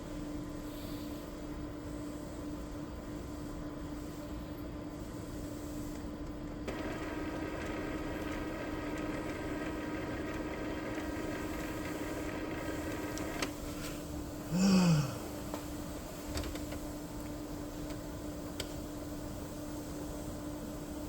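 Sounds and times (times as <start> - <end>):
motor stopping click: 6.7 - 13.5.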